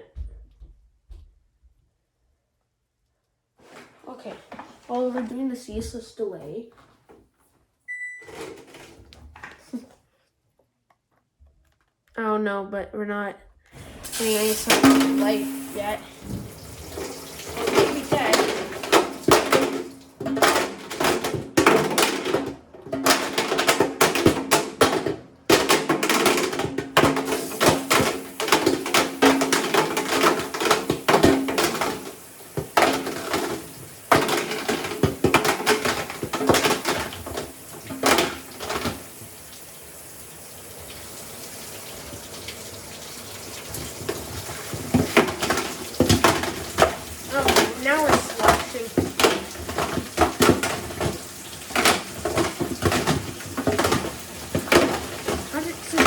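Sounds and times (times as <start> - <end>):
water sloshing: 13.8 - 22.0, 40.7 - 56.0
calculator clattering in washer drum: 13.8 - 56.0.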